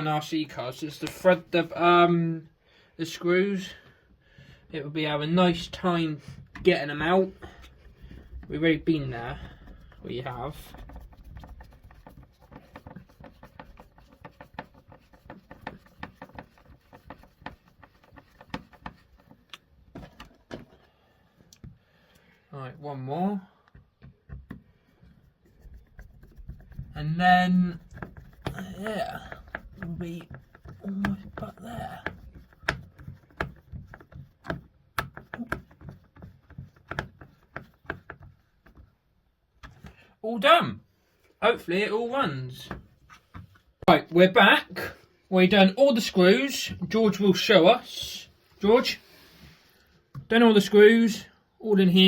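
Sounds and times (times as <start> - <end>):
hands handling plastic body: 6.3 - 21.8.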